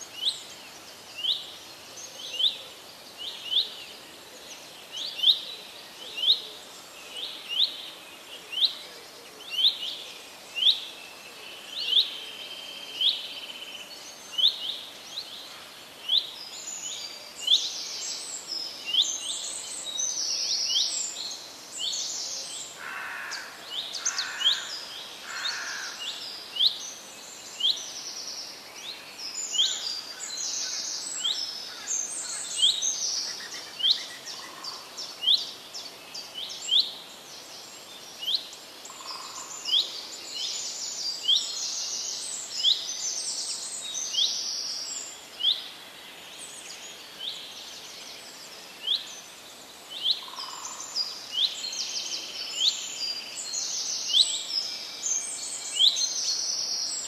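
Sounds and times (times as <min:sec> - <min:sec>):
background hiss: 0:00.0 - 0:57.0.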